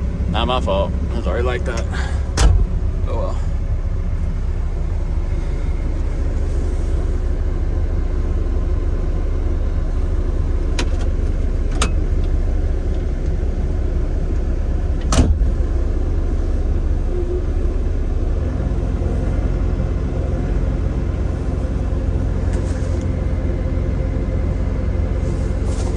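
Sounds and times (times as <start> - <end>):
excavator engine rumbling: 0.0 - 25.9
loud knock: 2.4 - 3.0.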